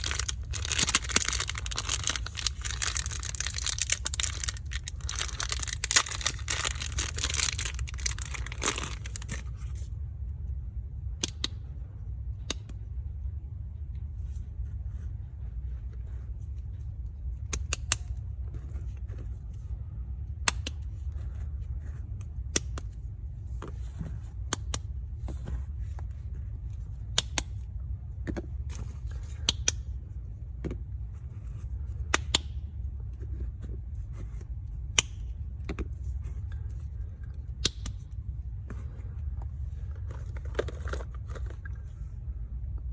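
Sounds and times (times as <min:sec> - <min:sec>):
soap wrapping crinkling: 0:00.0 - 0:09.6, 0:39.7 - 0:41.9
steady low hum: 0:00.0 - 0:42.9.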